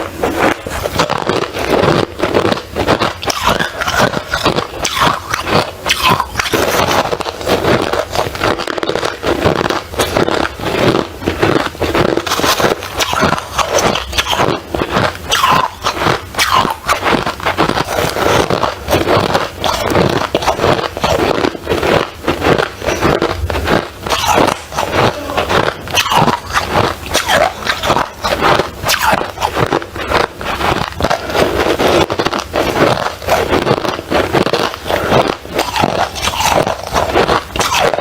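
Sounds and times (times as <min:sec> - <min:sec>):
ice being chewed: 0:00.0 - 0:38.0.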